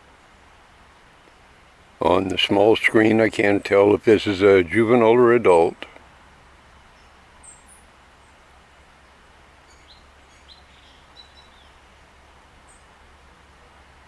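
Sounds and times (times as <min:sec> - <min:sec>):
outdoor background hum: 0:00.0 - 0:14.0.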